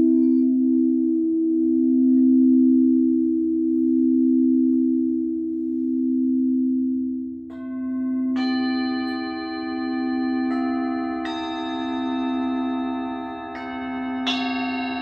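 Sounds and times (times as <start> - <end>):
singing bowl ringing: 7.5 - 15.0
struck bowl bright ring: 7.5 - 15.0.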